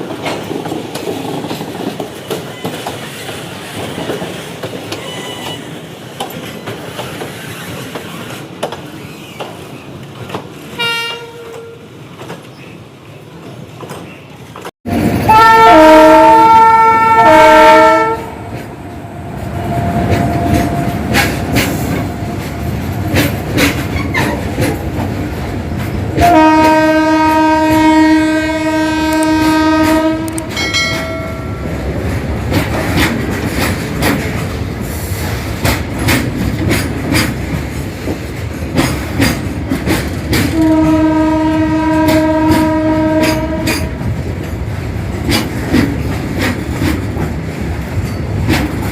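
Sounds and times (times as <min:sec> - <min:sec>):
train wheels clattering: 0:00.0 - 0:10.8, 0:16.0 - 0:48.9
train horn: 0:10.8 - 0:11.9, 0:15.2 - 0:18.6, 0:26.2 - 0:31.5, 0:40.4 - 0:44.0.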